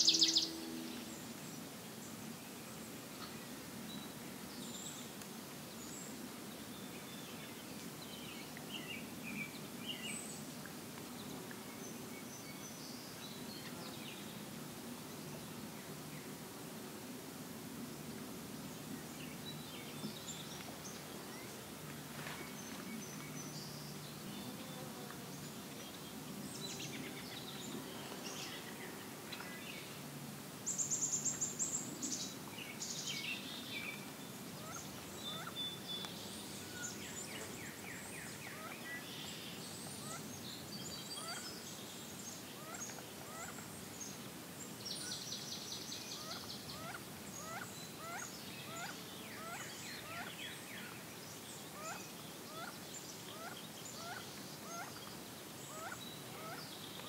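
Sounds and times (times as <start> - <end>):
birds high song phrases: 0.0 - 1.2.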